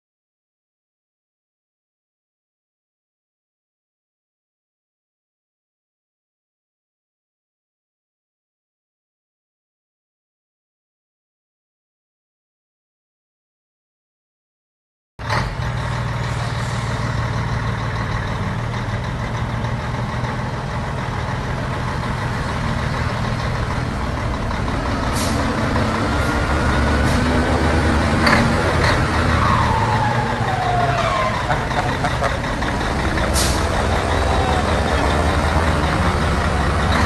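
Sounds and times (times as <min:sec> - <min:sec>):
truck diesel engine running: 0:15.2 - 0:37.0.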